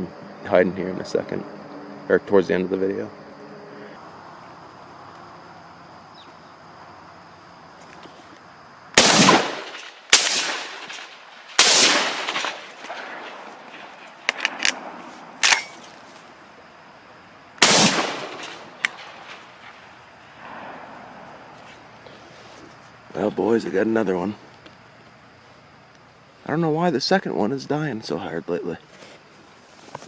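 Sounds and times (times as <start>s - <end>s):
shotgun shots echoing: 9.0s - 13.8s, 17.6s - 19.5s
sharp clicks: 14.2s - 14.8s, 17.6s - 19.3s.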